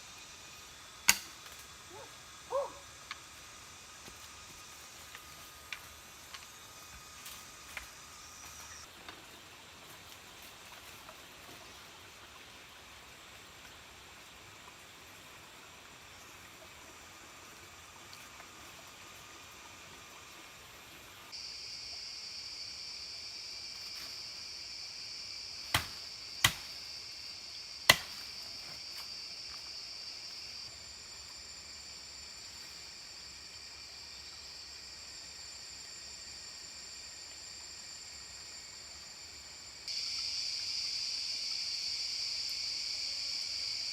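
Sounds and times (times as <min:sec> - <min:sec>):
high-pitched insect drone: 0:00.0 - 0:08.9, 0:21.2 - 0:43.9
faint outdoor ambience: 0:00.0 - 0:43.9.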